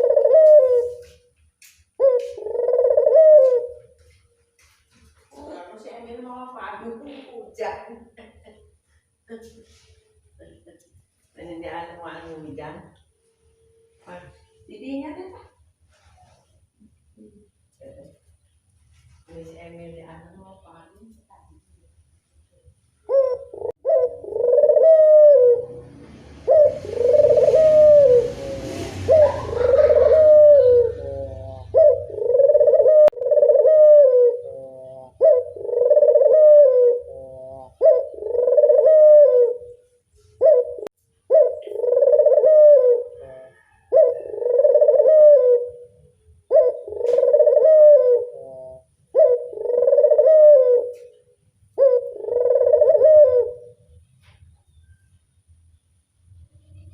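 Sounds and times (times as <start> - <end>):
dove cooing: 0.0 - 1.2, 2.0 - 4.2, 23.0 - 39.8, 40.4 - 54.0.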